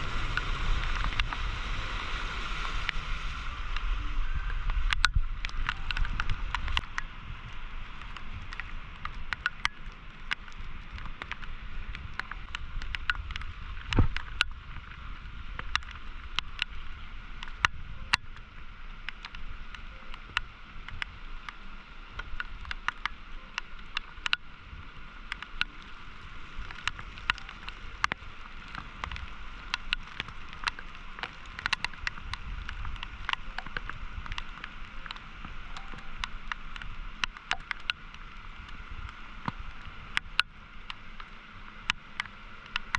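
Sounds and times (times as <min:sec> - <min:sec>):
flooding river rushing: 0:00.0 - 0:15.3
sharp ticks: 0:26.6 - 0:42.9.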